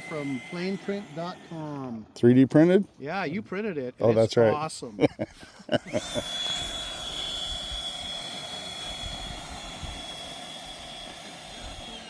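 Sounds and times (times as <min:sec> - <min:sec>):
model jet high whine: 0:00.0 - 0:02.2, 0:05.8 - 0:12.0
rushing air: 0:06.0 - 0:12.0.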